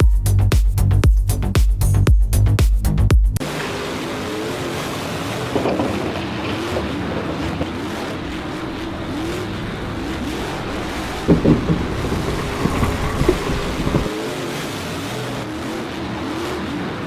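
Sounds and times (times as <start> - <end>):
vehicle engine rising and falling: 0.0 - 17.0
heavy thumps: 10.5 - 14.1.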